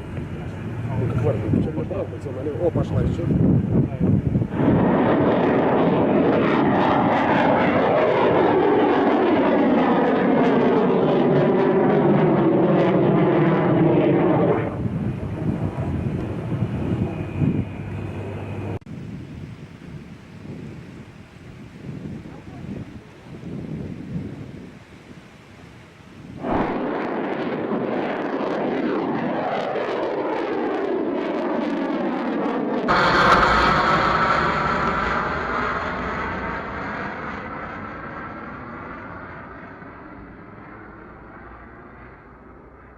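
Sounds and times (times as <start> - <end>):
rocket booster roaring: 4.4 - 18.8, 26.4 - 41.1.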